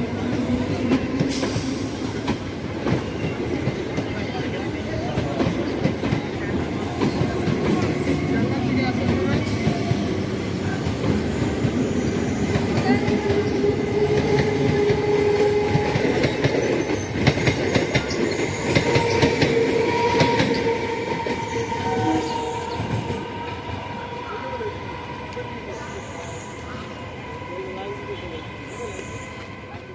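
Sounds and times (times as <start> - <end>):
train wheels clattering on rails: 0.0 - 23.9.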